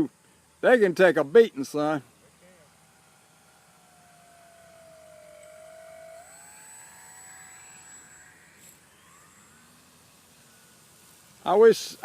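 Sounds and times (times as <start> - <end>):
rc plane motor whining: 0.0 - 12.0.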